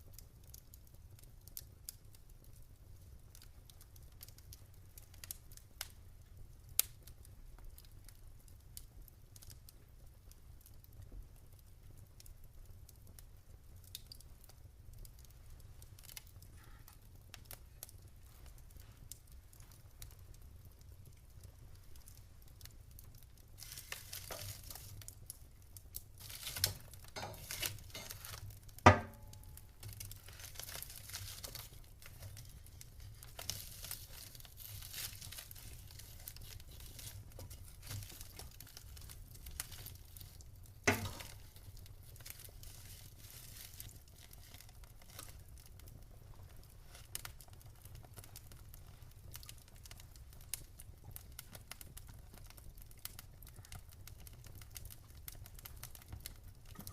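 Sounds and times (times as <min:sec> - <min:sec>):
wood fire crackling: 0:00.0 - 0:56.9
loud sharp fire pops: 0:40.9 - 0:41.5.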